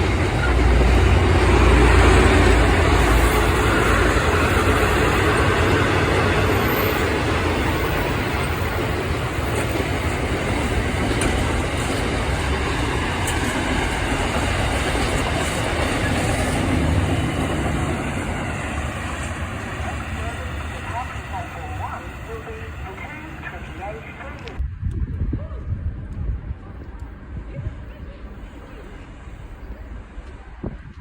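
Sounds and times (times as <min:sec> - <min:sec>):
goods train rumbling past: 0:00.0 - 0:24.6
wagons rattling on track: 0:00.0 - 0:24.6.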